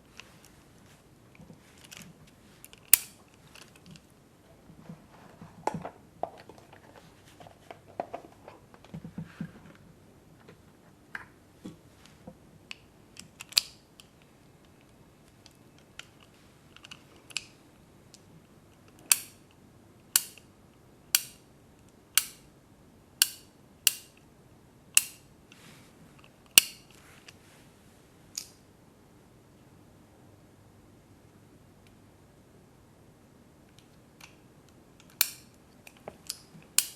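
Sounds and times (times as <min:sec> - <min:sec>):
tools clicking: 0:02.6 - 0:03.8, 0:19.1 - 0:19.4, 0:20.2 - 0:20.4, 0:21.2 - 0:21.4, 0:22.2 - 0:22.4, 0:23.2 - 0:24.2, 0:25.0 - 0:25.2, 0:26.6 - 0:26.8, 0:35.0 - 0:36.9.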